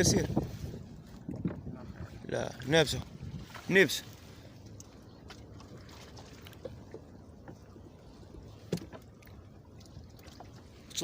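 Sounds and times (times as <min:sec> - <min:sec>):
water lapping against boat hull: 0:00.0 - 0:11.0
light knocks on boat: 0:08.6 - 0:09.1.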